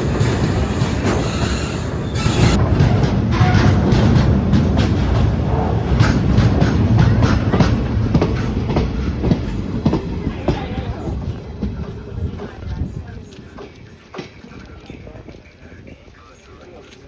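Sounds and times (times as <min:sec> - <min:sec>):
train wheels clicking over rail joints: 0:00.0 - 0:16.0
train rumble: 0:00.0 - 0:17.0.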